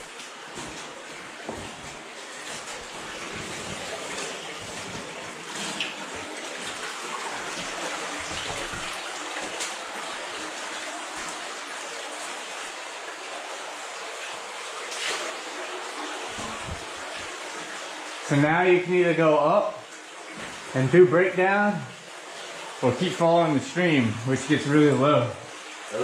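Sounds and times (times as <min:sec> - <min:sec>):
water rushing over rock: 0:00.0 - 0:12.5, 0:14.9 - 0:19.6.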